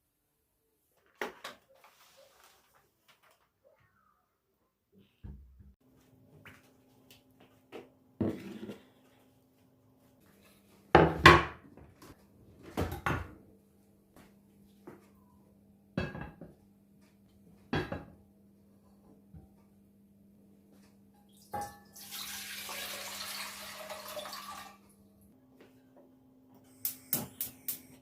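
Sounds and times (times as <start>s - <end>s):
dishes and pans clattering: 17.8s - 18.1s.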